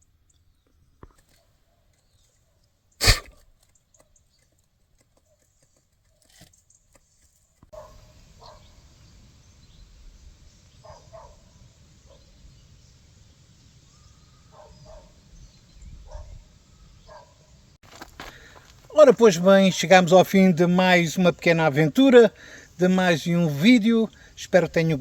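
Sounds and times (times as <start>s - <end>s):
outdoor background: 0.0s - 25.0s
loud sharp thud: 3.0s - 3.4s
short animal calls: 3.0s - 3.4s.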